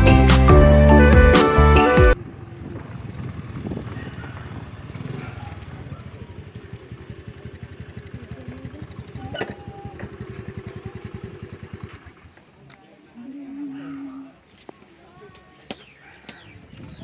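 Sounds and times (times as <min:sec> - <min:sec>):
small motorcycle engine putter: 0:07.3 - 0:12.3.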